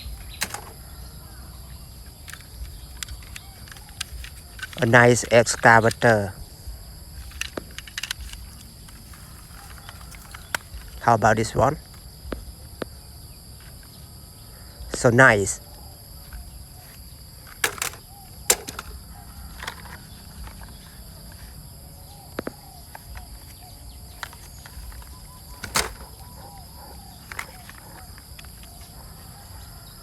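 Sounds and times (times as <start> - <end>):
sharp clicks and knocks: 0.0 - 0.8, 17.5 - 19.0, 24.2 - 28.7
crickets chirring: 0.0 - 30.0.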